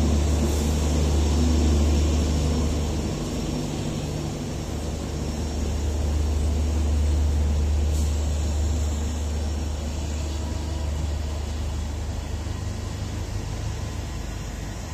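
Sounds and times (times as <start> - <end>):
train coaches rolling past: 0.0 - 14.9.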